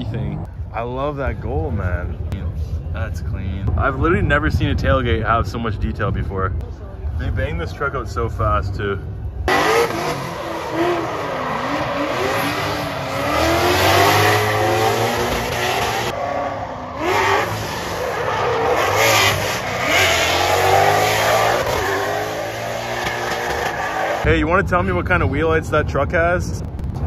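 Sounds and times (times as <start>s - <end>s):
car engines revving hard: 9.4s - 24.3s.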